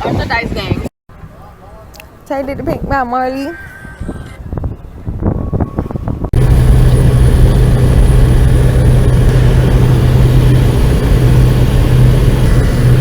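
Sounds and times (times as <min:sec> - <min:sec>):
propeller plane engine drone: 0:06.4 - 0:13.0.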